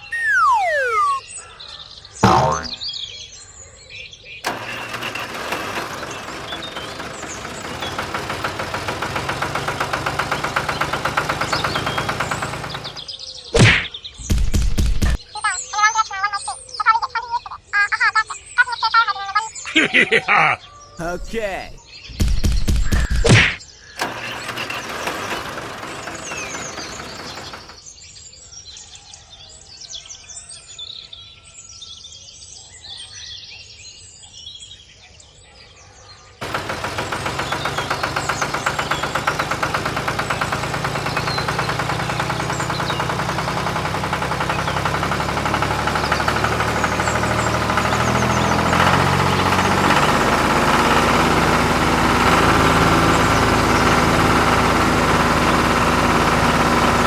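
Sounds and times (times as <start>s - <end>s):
small engine running: 0.0s - 1.2s, 4.4s - 13.2s, 24.0s - 27.8s, 36.4s - 57.0s
small birds chirping: 0.0s - 4.4s, 6.0s - 19.8s, 34.2s - 51.8s.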